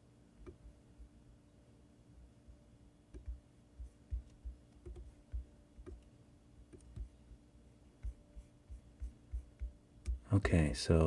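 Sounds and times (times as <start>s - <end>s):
low steady hum: 0.0s - 11.0s
mouse and keyboard clicking: 3.1s - 3.4s, 4.1s - 6.1s, 6.7s - 7.2s, 8.0s - 10.2s.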